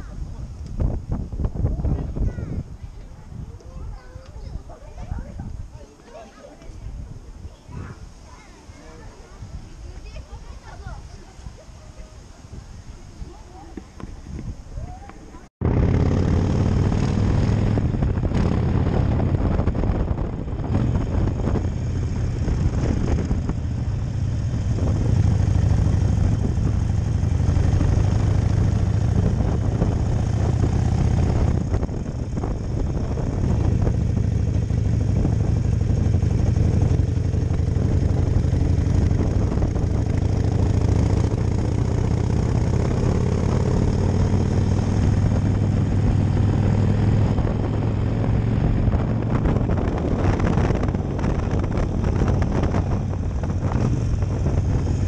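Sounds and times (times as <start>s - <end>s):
motorcycle engine running: 15.6s - 55.0s.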